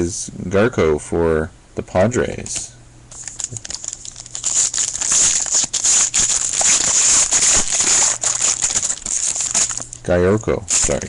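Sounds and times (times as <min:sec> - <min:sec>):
wrapper tearing and crinkling: 0:03.2 - 0:10.1, 0:10.7 - 0:11.0.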